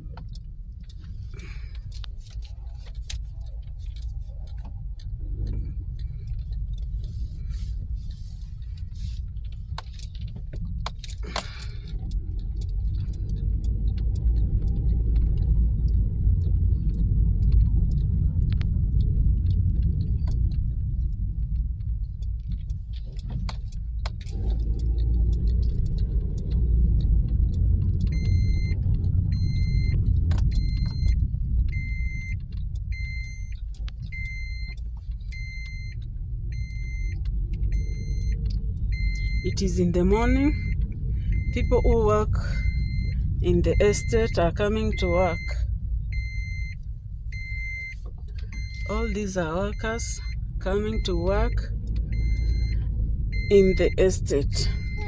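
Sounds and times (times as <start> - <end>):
car engine and tyres rumbling: 0.0 - 55.0
electronic warning chime beeping: 39.0 - 40.8, 41.4 - 45.6, 48.6 - 52.8, 53.4 - 55.0.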